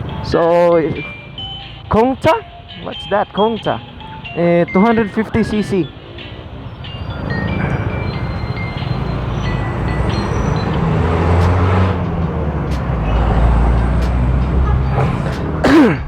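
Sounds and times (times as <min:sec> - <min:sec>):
motorcycle engines rumbling: 0:00.0 - 0:02.0, 0:06.8 - 0:16.0.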